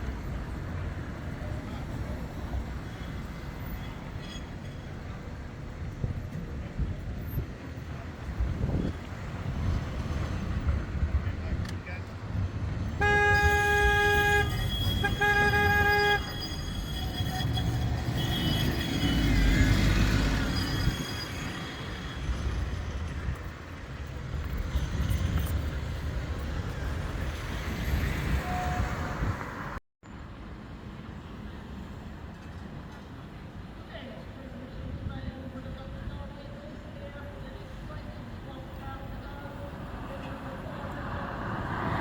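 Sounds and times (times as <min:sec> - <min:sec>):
tram rumbling past: 0:00.0 - 0:42.0
wheel squeal: 0:02.8 - 0:05.3, 0:13.4 - 0:23.2
tram horn toots: 0:12.8 - 0:22.6, 0:27.9 - 0:29.8.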